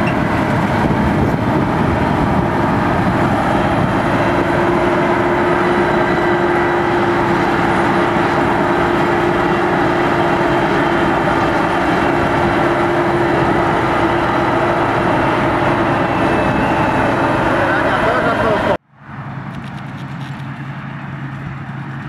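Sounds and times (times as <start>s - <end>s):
heavy machinery engine running: 0.0s - 22.0s.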